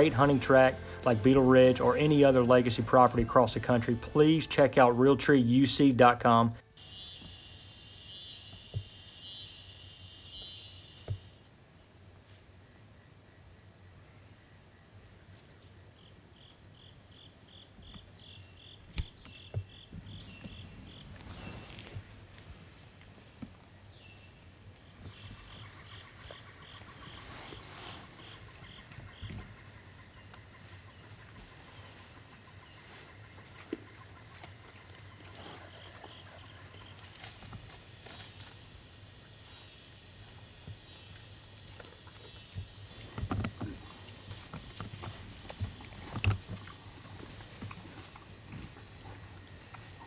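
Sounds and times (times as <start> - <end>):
insects droning: 0.0 - 50.0
rustles and knocks: 42.5 - 48.9.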